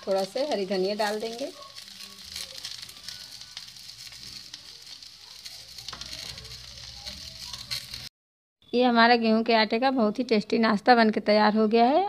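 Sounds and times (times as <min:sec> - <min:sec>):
oil sizzling in a pan: 0:00.0 - 0:08.1
small crackling pops: 0:00.0 - 0:08.1.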